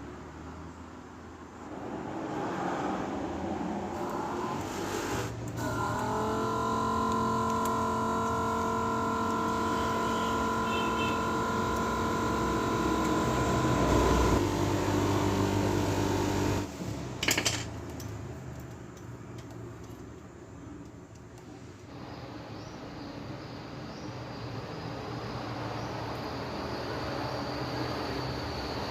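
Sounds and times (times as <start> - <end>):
small electric motor humming: 4.0 - 16.7.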